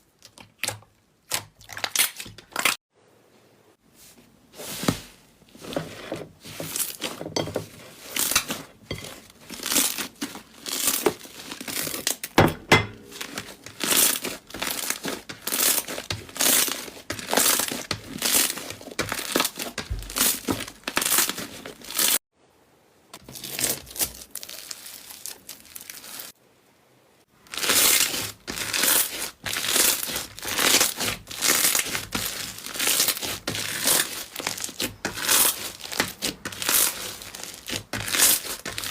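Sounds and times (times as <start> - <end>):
slime squeezed by hand crackling: 23.7 - 26.4.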